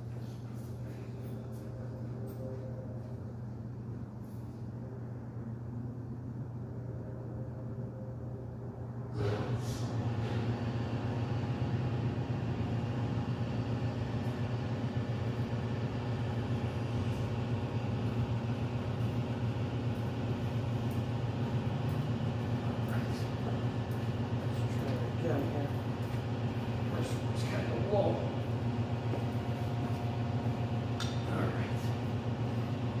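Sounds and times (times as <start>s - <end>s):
air compressor hum: 8.8s - 33.0s.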